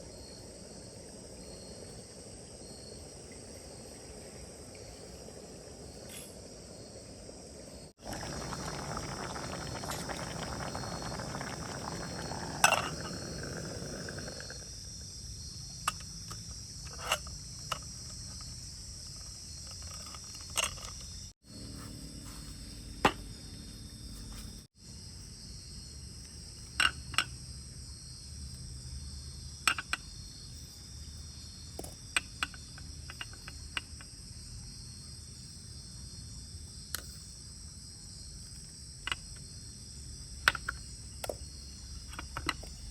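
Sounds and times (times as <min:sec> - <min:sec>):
crickets chirring: 0:00.0 - 0:42.9
rough noise: 0:08.0 - 0:14.7.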